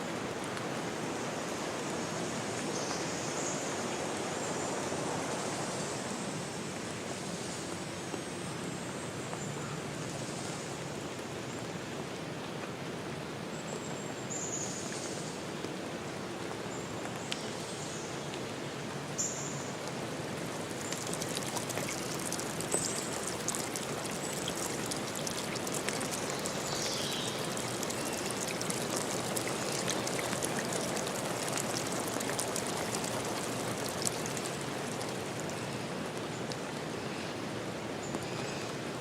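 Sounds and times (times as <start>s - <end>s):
water rushing: 19.7s - 38.1s
water dripping and pattering: 19.8s - 38.3s.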